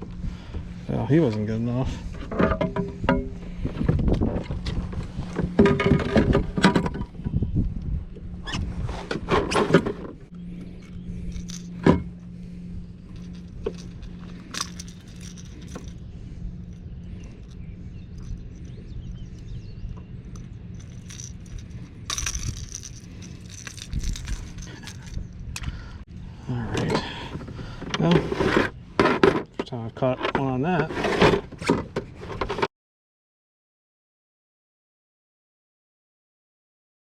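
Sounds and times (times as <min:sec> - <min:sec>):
steady low hum: 0:00.0 - 0:32.6
fishing tackle clinking: 0:13.1 - 0:16.0, 0:20.2 - 0:25.7.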